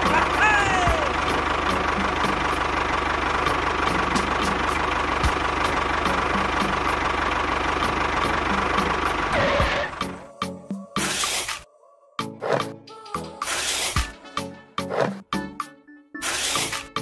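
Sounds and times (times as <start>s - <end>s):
tractor engine knocking: 0.0s - 9.9s.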